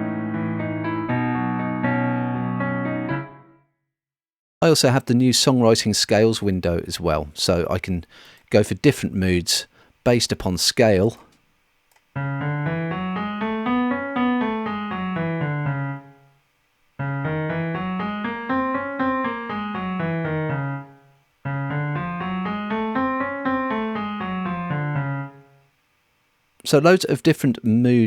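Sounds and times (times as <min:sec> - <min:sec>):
piano arpeggio: 0:00.0 - 0:03.5, 0:12.2 - 0:16.3, 0:17.0 - 0:25.6.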